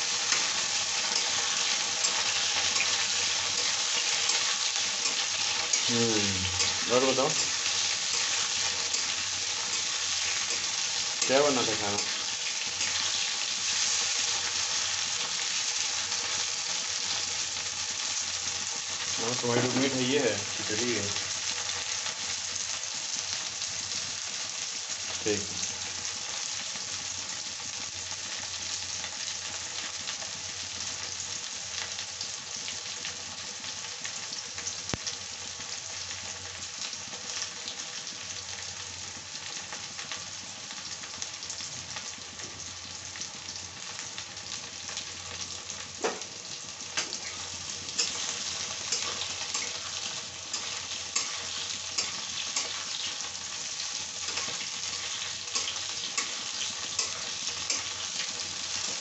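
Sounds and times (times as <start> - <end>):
vegetables sizzling in hot oil: 0.0 - 59.0
metal spatula stirring: 0.2 - 5.9, 6.6 - 12.2, 54.2 - 58.0.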